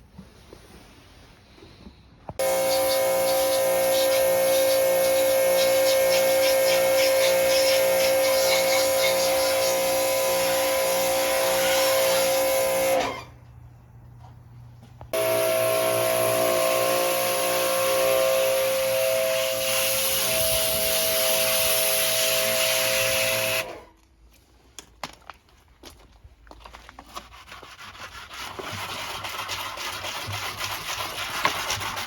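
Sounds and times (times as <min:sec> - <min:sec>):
pressure washer spraying: 0:02.4 - 0:13.2, 0:15.2 - 0:23.8.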